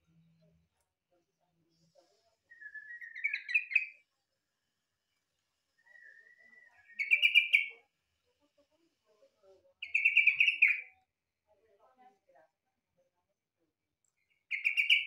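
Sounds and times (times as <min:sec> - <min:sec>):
faint thin bird whistle: 0:02.4 - 0:04.0, 0:05.7 - 0:07.8
bird singing rippling phrases: 0:02.5 - 0:04.0, 0:05.8 - 0:07.8, 0:09.8 - 0:11.0, 0:14.3 - 0:15.0.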